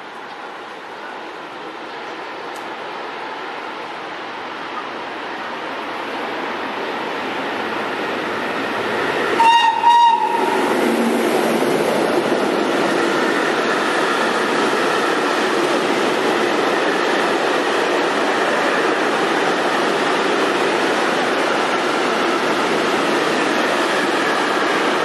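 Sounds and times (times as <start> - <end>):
train wheels rumbling on rail: 0.0 - 25.0
train horn blasts: 9.4 - 10.7.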